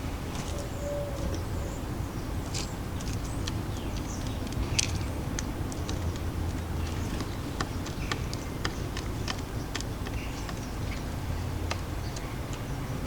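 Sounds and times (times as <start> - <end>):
birds pecking at seed: 2.4 - 12.7.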